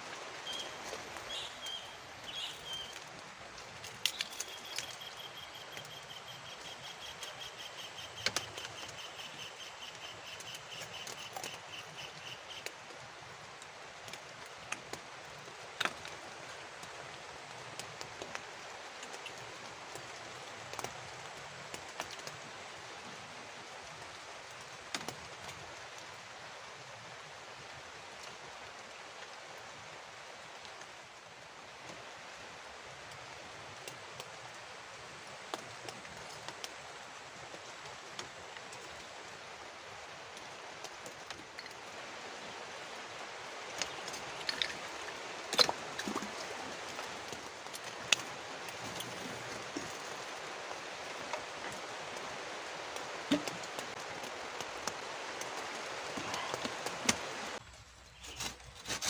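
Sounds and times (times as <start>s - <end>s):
rain falling: 0.0s - 57.7s
small stream: 0.0s - 59.0s.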